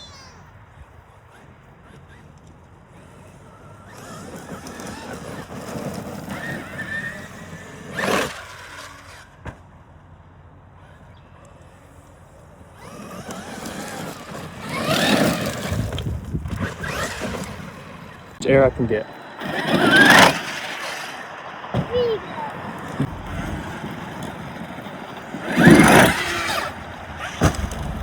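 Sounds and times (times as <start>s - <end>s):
electric motor whining: 1.1s - 9.4s, 12.8s - 18.4s, 19.1s - 28.0s
sharp bang: 27.2s - 28.0s.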